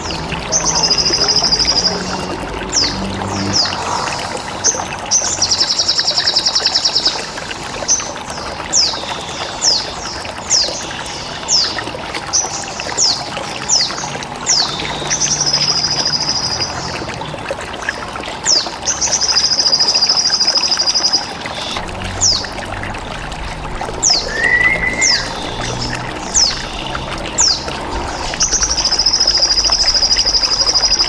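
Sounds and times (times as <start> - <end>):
running water trickling: 0.0 - 31.0
bird chirping: 19.3 - 31.0.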